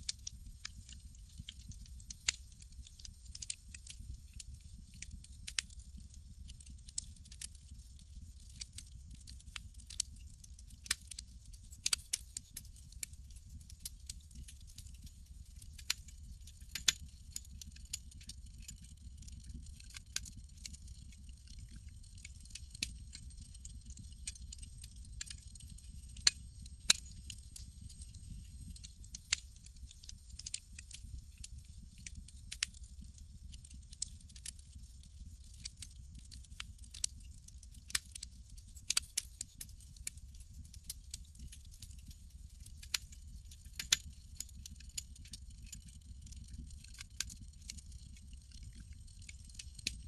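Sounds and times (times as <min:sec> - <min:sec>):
campfire crackling: 0:00.7 - 0:03.5, 0:08.1 - 0:10.0, 0:13.6 - 0:32.8, 0:35.6 - 0:37.0.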